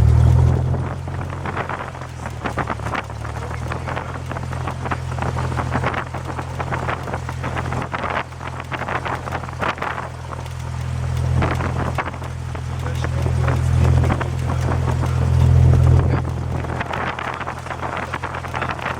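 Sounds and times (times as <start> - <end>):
propeller plane engine droning: 0.0 - 18.9.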